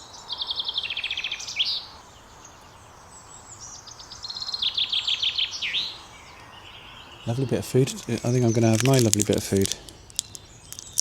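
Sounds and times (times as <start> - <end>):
chaffinch singing: 6.5 - 11.0.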